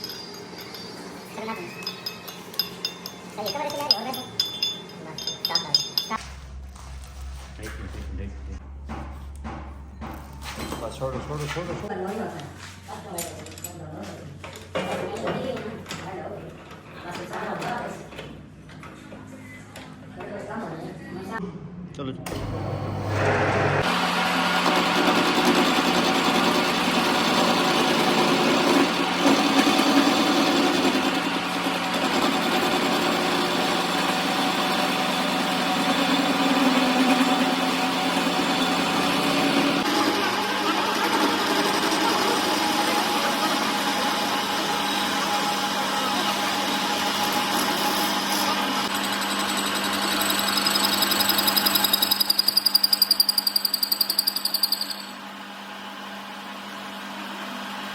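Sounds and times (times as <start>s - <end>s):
machine humming: 22.2s - 24.9s.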